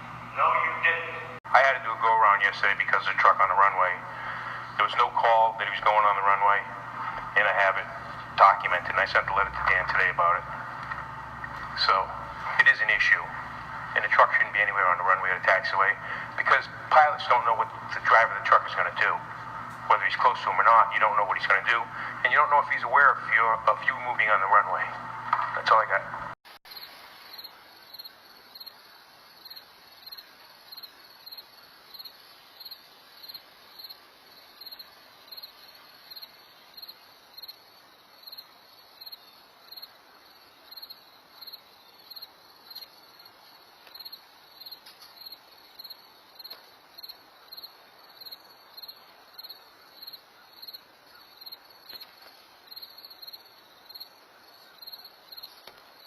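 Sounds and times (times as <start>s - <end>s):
low steady hiss: 26.7s - 56.0s.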